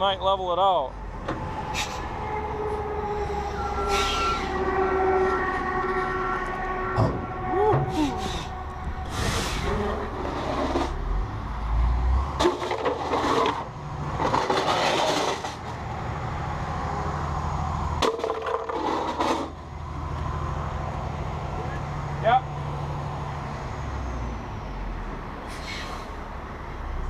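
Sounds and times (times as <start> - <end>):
brief squeal: 3.2 - 4.6, 25.5 - 26.1.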